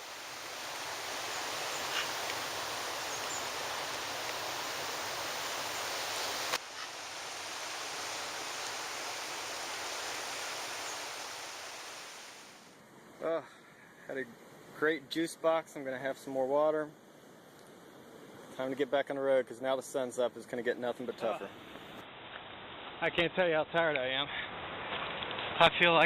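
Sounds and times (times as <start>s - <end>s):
rushing hiss of rainforest: 0.0s - 13.4s.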